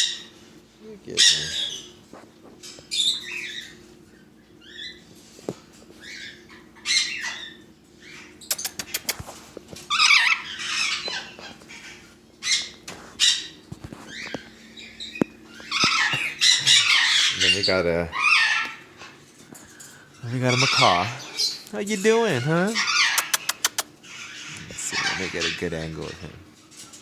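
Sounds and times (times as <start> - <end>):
parrots squawking: 0.0 - 0.3, 1.1 - 2.0, 6.0 - 9.2, 9.9 - 19.2, 20.2 - 26.3
sharp clicks: 8.5 - 9.2, 23.2 - 23.9.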